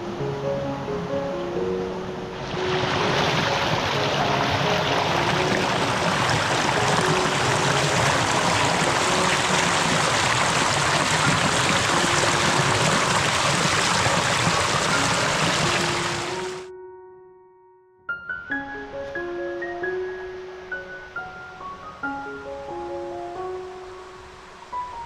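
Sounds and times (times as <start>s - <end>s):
creek and waterfall rushing: 2.2s - 16.7s.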